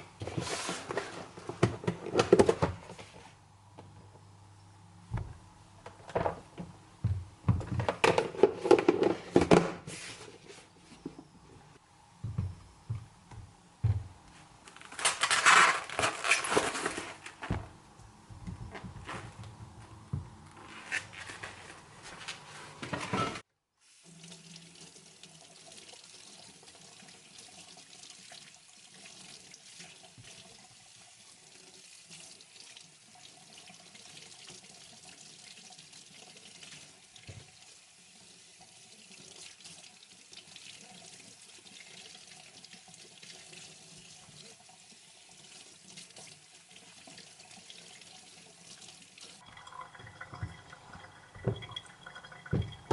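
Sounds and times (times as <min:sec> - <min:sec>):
tap running into sink: 0:49.6 - 0:52.9.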